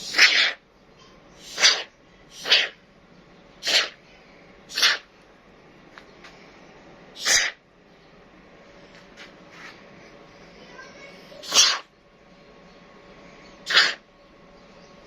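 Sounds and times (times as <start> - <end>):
short hissing bursts: 0.0 - 0.6, 1.4 - 2.8, 3.6 - 4.0, 4.7 - 5.1, 7.2 - 7.6, 11.4 - 11.9, 13.7 - 14.0.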